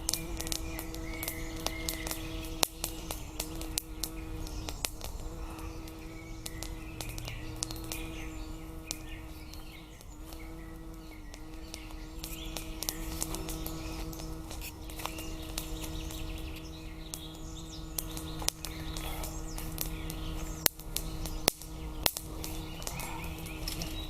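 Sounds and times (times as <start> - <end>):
birds chirping: 0.0 - 24.0
sharp irregular clicks: 0.0 - 24.0
steady low hum: 0.0 - 24.0.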